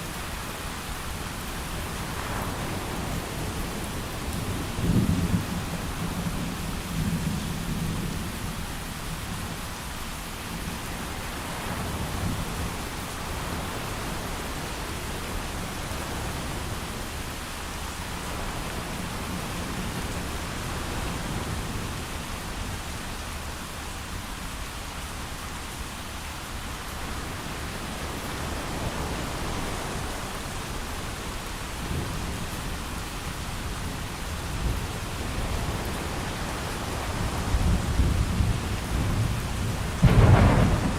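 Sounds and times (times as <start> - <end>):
heavy rain falling: 0.0 - 40.9
low thunder rumbling: 33.6 - 40.9.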